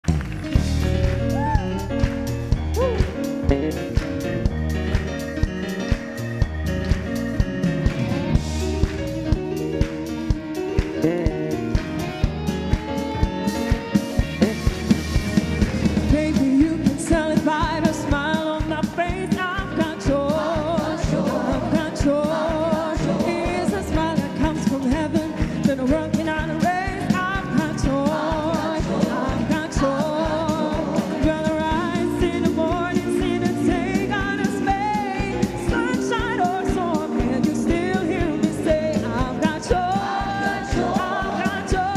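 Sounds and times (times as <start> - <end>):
worship song with band: 0.1 - 41.9
person singing: 2.7 - 3.8, 9.6 - 14.9, 16.1 - 41.9.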